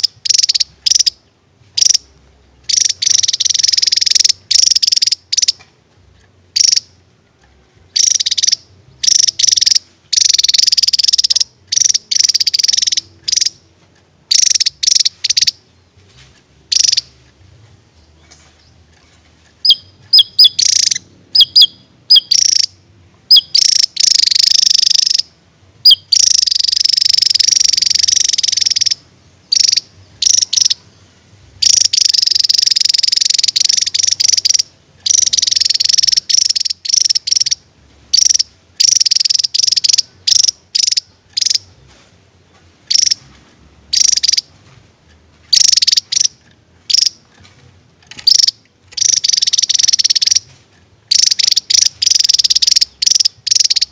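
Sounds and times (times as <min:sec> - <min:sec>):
bird song with rattling trills: 0:00.0 - 0:13.6, 0:14.3 - 0:17.3, 0:17.9 - 0:43.3, 0:43.9 - 0:44.5, 0:45.5 - 0:53.9.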